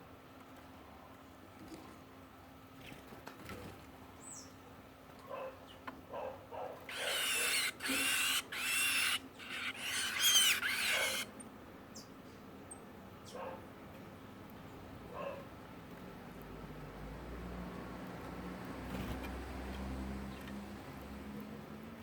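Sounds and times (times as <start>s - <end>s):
bird harsh raspy calls: 6.9s - 11.3s.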